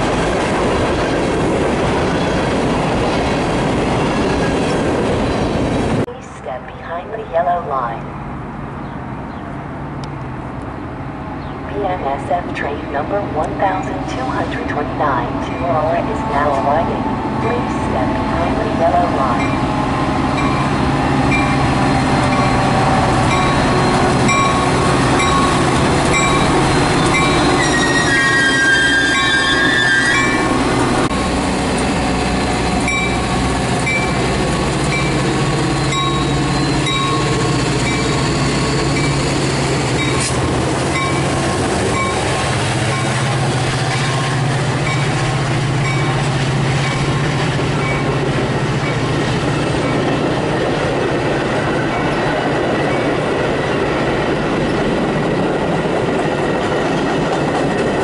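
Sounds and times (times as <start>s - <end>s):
train wheels on rails: 0.0s - 6.1s, 12.6s - 58.0s
high-pitched wheel squeal: 26.2s - 30.6s, 35.7s - 40.2s.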